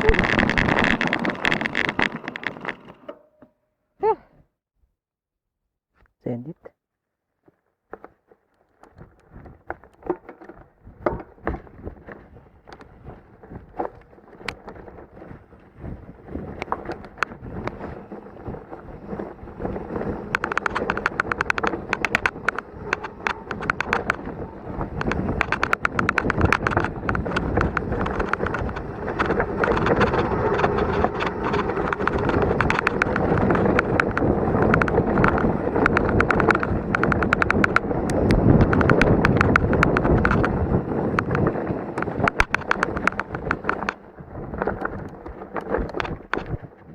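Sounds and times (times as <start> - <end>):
wind on microphone: 0.0 - 2.8, 8.8 - 46.9
mountain bike rattling over rocks: 0.0 - 3.1, 7.9 - 46.9
bike knocking on rocks: 19.2 - 46.7.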